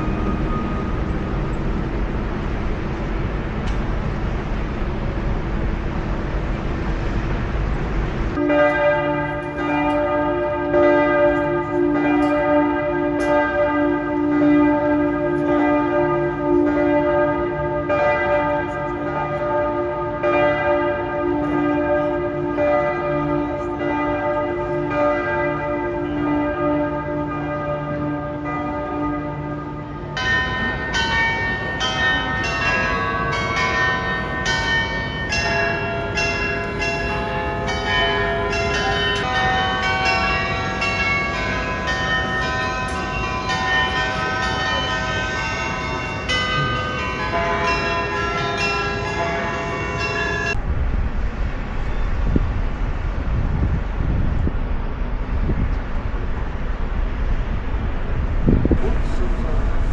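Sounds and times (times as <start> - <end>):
glockenspiel bells ringing: 0.0 - 4.4, 30.1 - 50.6
steady noisy rumble: 0.0 - 12.1, 50.5 - 59.9.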